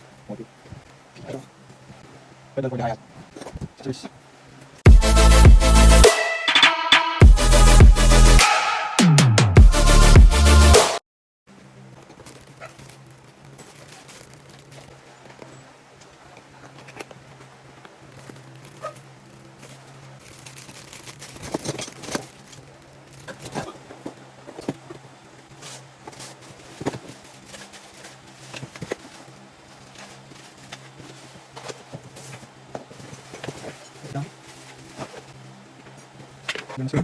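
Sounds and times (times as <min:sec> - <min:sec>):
packaging crinkling: 0:19.6 - 0:24.1, 0:25.6 - 0:35.4.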